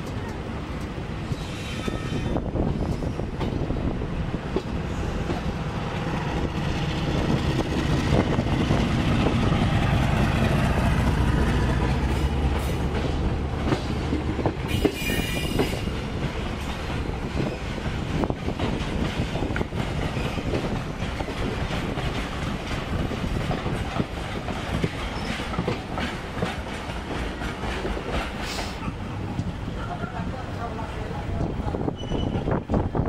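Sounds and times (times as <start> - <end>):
freight train passing: 0.0 - 33.0
train wheels rumbling on rails: 0.0 - 33.0
high wheel squeal: 1.3 - 3.3, 32.0 - 32.6.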